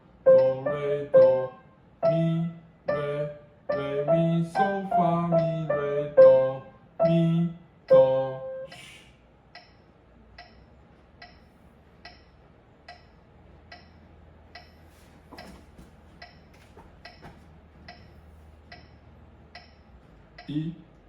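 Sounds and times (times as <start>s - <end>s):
faint metronome ticking: 0.3s - 8.9s, 9.5s - 14.8s, 18.7s - 20.7s.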